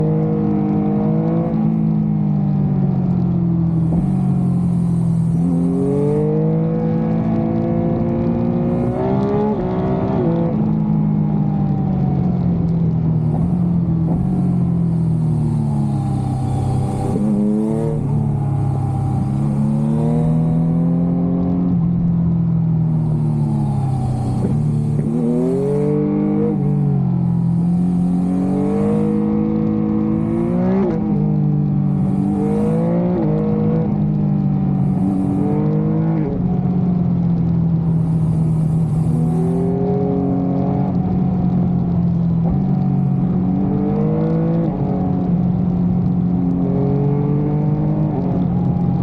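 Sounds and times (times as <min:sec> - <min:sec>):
motorcycle engine revving: 0:03.0 - 0:49.0.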